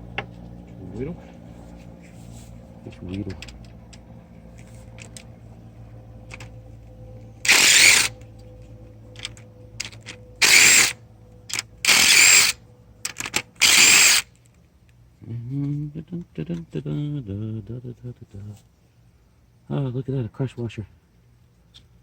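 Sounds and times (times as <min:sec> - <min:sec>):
power driver bursts: 0:07.4 - 0:08.2, 0:10.4 - 0:12.6, 0:13.3 - 0:14.2.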